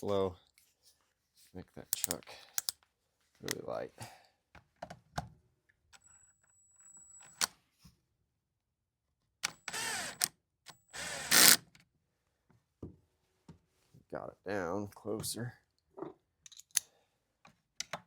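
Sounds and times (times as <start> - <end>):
light handling clicks: 2.0 - 2.8
cordless drill driving a screw: 9.4 - 11.7.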